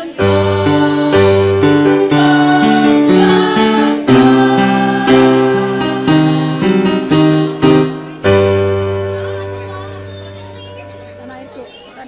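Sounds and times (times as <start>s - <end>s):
choir singing: 0.0s - 9.5s
instrumental accompaniment: 0.0s - 12.0s.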